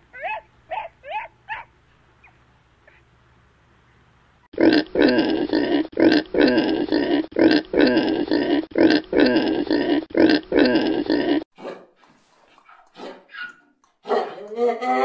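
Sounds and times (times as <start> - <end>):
pig grunting: 4.6 - 11.5.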